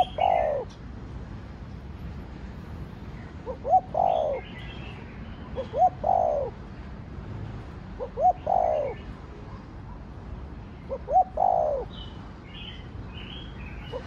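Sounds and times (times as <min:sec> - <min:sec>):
dove cooing: 0:00.0 - 0:00.8, 0:03.4 - 0:04.6, 0:05.6 - 0:06.6, 0:08.0 - 0:09.1, 0:10.9 - 0:12.0.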